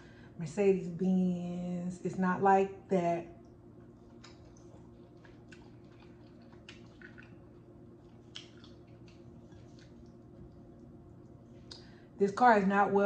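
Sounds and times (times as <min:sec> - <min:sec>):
person chewing: 0:03.9 - 0:11.9
mouth smacks and clicks: 0:04.2 - 0:07.4, 0:08.0 - 0:10.1.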